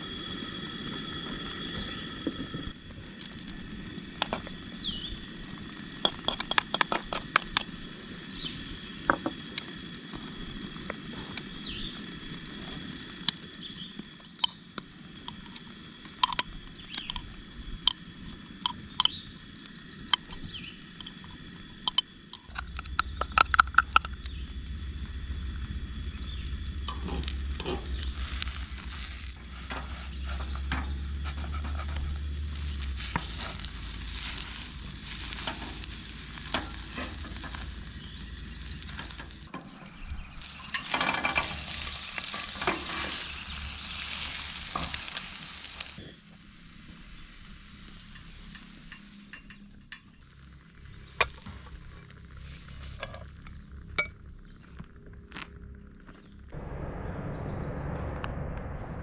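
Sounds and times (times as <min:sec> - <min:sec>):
food frying: 0:00.0 - 0:39.5, 0:40.3 - 0:54.3
low steady hum: 0:16.1 - 0:59.0
utensils tapping cookware: 0:48.1 - 0:50.2.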